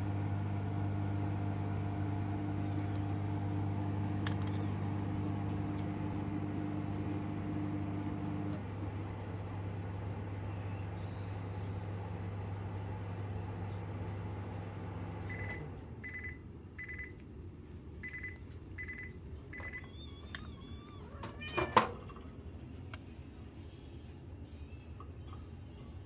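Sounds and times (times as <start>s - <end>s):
microwave oven humming: 0.0s - 26.0s
microwave beeps: 15.2s - 17.2s, 18.0s - 20.8s.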